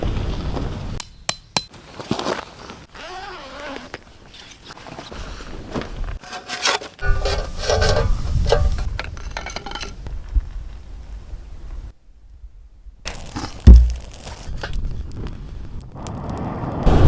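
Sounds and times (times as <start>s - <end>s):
rubbing and scraping: 6.1s - 10.0s.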